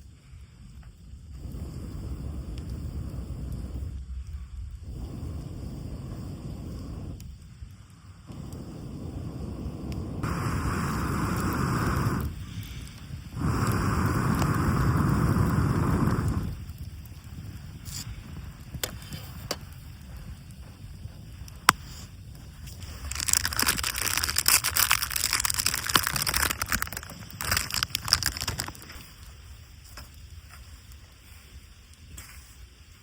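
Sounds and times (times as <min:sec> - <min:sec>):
dry wood crackling and snapping: 0:11.4 - 0:31.2.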